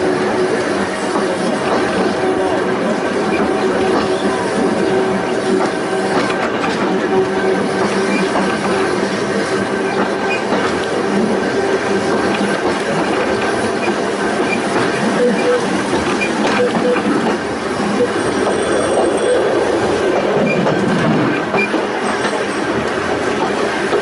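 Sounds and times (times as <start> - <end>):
railway car rumbling on track: 0.0 - 24.0
wheel squeals: 13.8 - 19.6.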